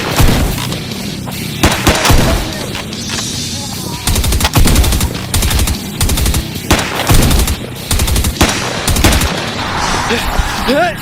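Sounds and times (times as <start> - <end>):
automatic gunfire bursts: 1.6 - 3.3.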